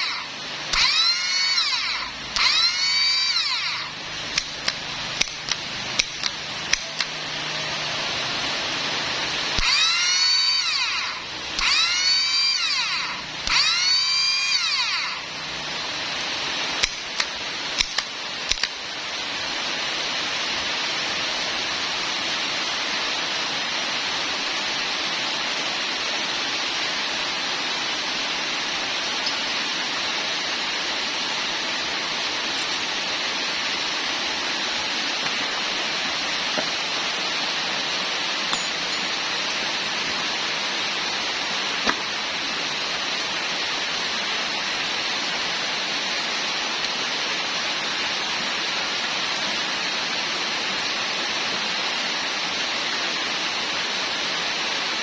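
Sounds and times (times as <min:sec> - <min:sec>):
power tool whirring: 0:00.0 - 0:18.8
steady hiss: 0:00.0 - 0:55.0
sharp clicks: 0:00.8 - 0:07.2, 0:09.6 - 0:15.3, 0:16.8 - 0:18.8.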